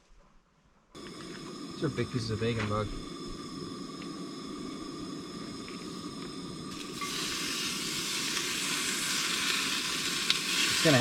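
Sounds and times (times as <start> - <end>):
bacon sizzling in a pan: 5.3 - 11.0.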